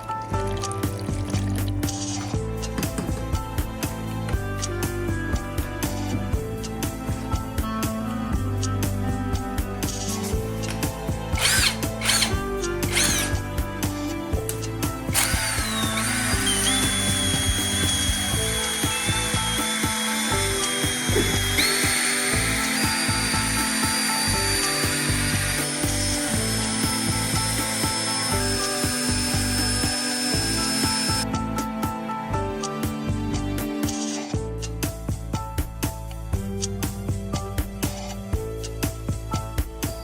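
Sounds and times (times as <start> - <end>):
background music: 0.0 - 40.0
power tool high whine: 11.4 - 13.4, 15.1 - 31.2.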